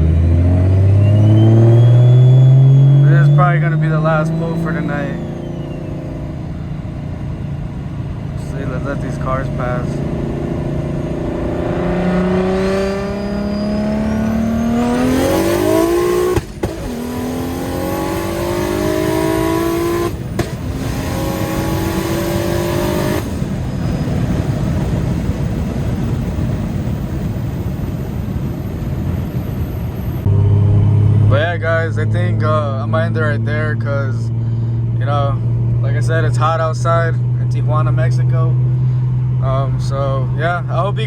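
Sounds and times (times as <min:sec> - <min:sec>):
car engine accelerating: 0:00.0 - 0:41.0
road noise: 0:00.0 - 0:41.0
turbo whistle: 0:00.2 - 0:06.3, 0:12.6 - 0:15.5.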